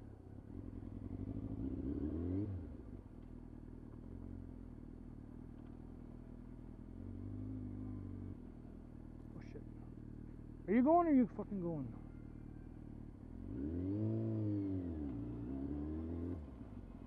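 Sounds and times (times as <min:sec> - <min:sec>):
motorcycle engine revving: 0:01.0 - 0:02.8, 0:13.3 - 0:17.0.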